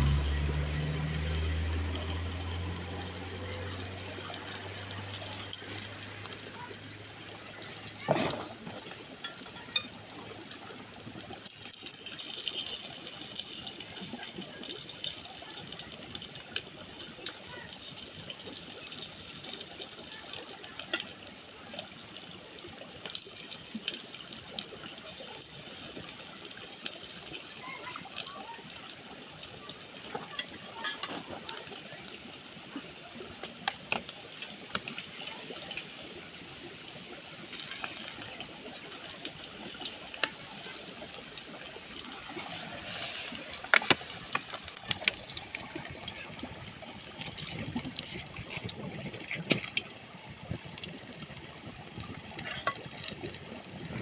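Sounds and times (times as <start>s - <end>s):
water running: 23.6s - 54.0s.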